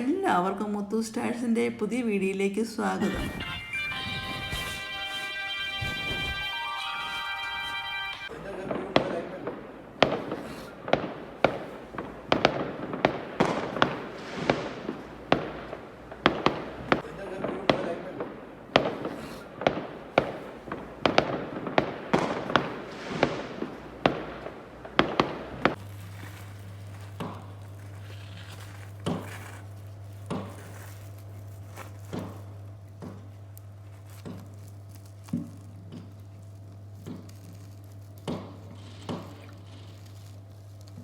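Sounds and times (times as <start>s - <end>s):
steady low hum: 0.0s - 41.0s
fireworks exploding: 3.0s - 32.7s.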